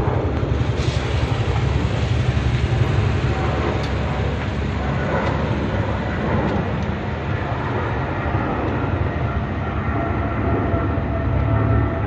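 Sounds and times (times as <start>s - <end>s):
motorcycle engines running: 0.0s - 9.6s.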